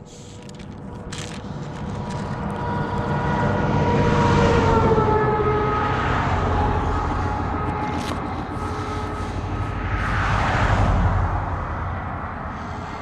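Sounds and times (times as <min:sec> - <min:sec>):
vehicle approaching on road: 0:00.1 - 0:13.0.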